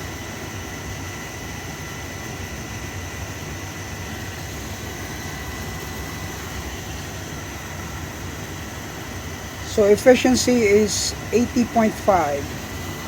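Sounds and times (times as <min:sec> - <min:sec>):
boiler burner rumble: 0:00.0 - 0:13.0
faint high steady tone: 0:09.6 - 0:13.0.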